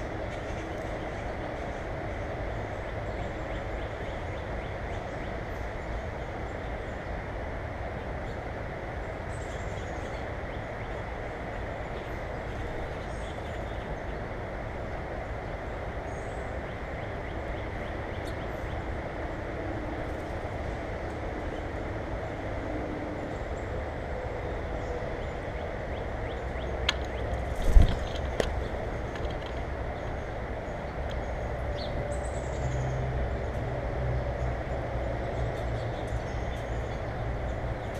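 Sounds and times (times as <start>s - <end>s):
small birds chirping: 34.3s - 37.9s.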